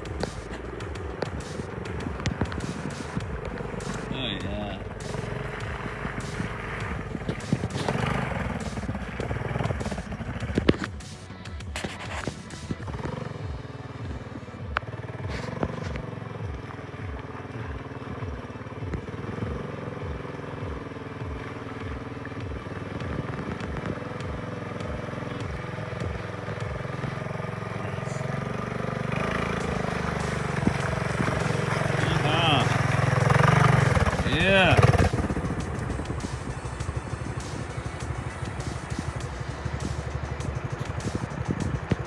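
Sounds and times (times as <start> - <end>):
small trail engines running: 0.0 - 42.0.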